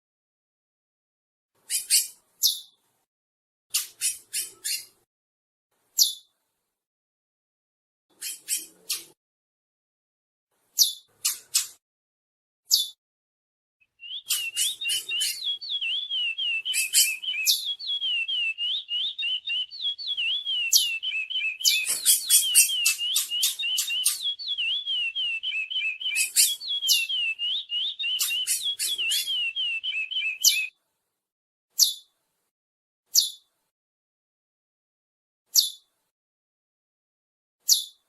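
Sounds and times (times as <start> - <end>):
finch singing warbled whistles: 13.8 - 30.7.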